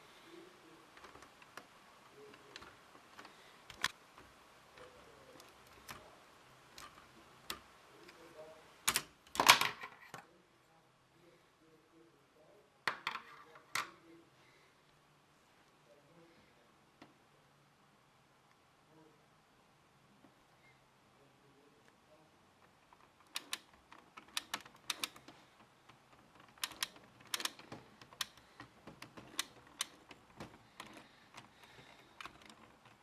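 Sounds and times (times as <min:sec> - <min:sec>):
plastic parts clicking: 0:00.9 - 0:06.1, 0:06.7 - 0:08.2, 0:08.8 - 0:10.2, 0:22.6 - 0:33.0.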